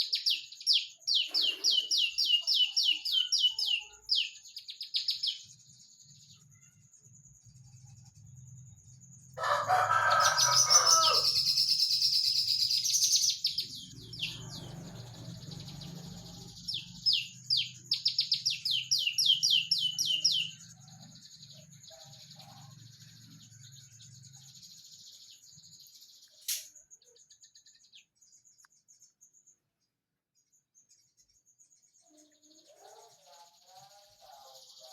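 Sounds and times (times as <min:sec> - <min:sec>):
bird singing high chirps: 0:00.0 - 0:29.7, 0:30.4 - 0:34.9
lower-pitched bird call: 0:09.4 - 0:20.6.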